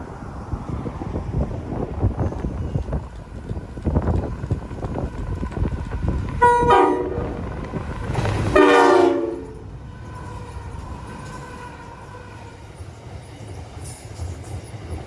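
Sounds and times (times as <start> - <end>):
train running rumble: 0.0 - 15.0
train horn blasts: 6.4 - 7.4, 8.5 - 9.7.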